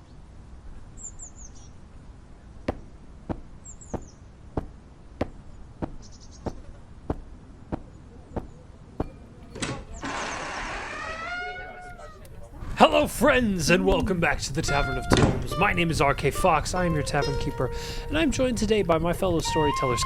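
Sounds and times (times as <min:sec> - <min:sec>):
bird chirps: 0:01.0 - 0:01.8, 0:03.6 - 0:04.3, 0:06.0 - 0:06.7
footsteps walking slowly: 0:02.6 - 0:12.8
door creaking open: 0:09.5 - 0:12.2.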